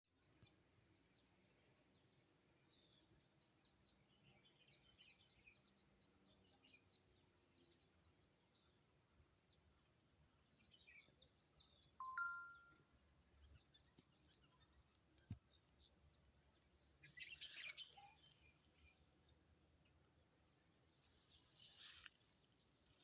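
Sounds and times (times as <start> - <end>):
faint birds chirping: 0.1 - 23.0.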